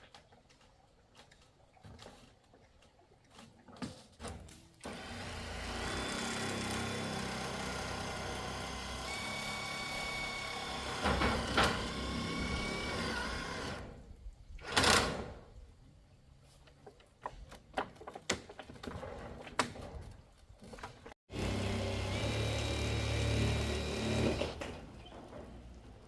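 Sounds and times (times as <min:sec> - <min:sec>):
small motor running: 0:04.9 - 0:13.8.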